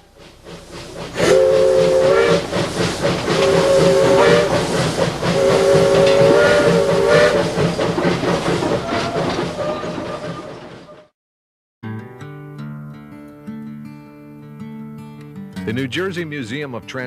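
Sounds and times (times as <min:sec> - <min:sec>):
steam hissing: 0:00.0 - 0:10.7
locomotive exhaust chuffing: 0:00.0 - 0:11.1
steam locomotive chime whistle: 0:01.2 - 0:02.6, 0:03.3 - 0:07.8, 0:08.8 - 0:11.1.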